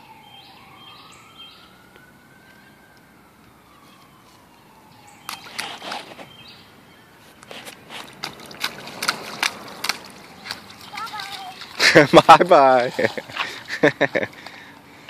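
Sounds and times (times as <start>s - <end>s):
distant siren wailing: 0.0s - 7.3s
feet splashing in puddle: 7.3s - 15.0s.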